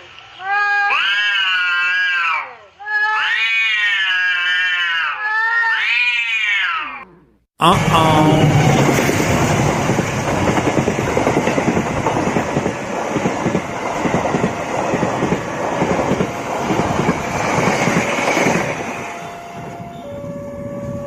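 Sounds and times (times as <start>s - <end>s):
train wheels clattering on rails: 8.6s - 19.3s.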